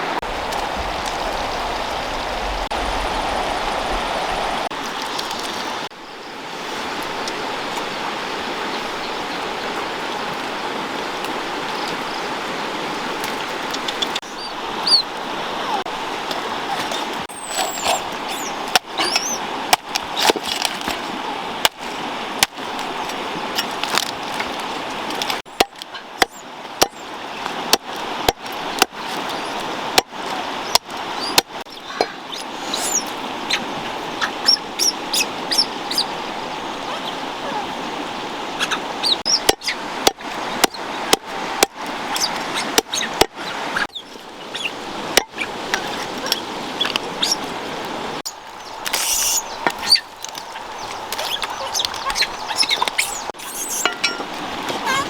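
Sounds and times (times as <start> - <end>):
running water: 0.0 - 55.0
high bird-like chirps: 17.3 - 19.4, 31.2 - 33.6, 34.2 - 36.1, 49.0 - 54.2.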